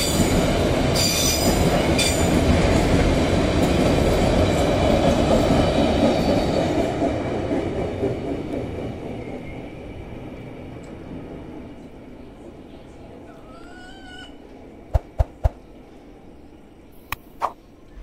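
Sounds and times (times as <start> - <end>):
freight train rumbling on rails: 0.0 - 17.0.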